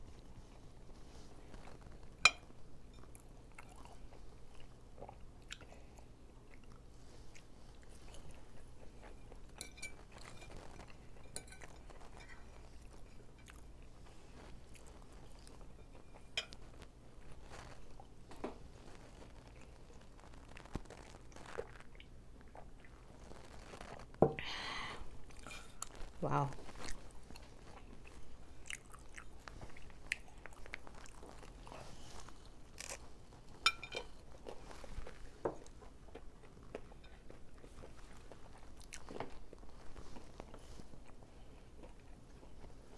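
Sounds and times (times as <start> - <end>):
chewing and crunching: 0.1 - 24.2, 25.2 - 42.9.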